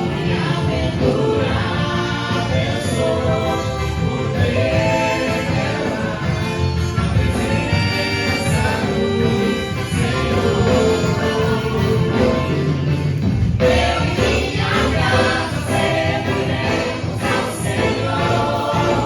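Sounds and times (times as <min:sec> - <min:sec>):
group singing worship song: 0:00.0 - 0:19.0
instrumental backing: 0:00.0 - 0:19.0.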